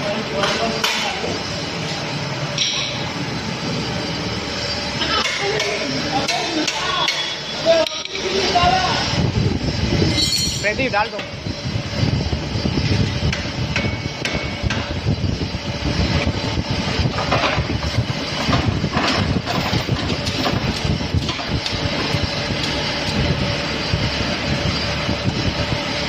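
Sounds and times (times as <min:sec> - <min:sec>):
conveyor rumbling and rattling: 0:00.0 - 0:26.0
knocks and clanks of material: 0:18.4 - 0:21.8.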